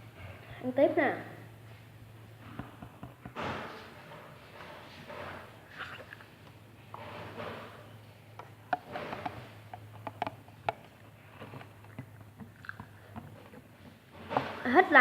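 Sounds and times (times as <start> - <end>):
person chewing sausage: 11.2 - 13.6.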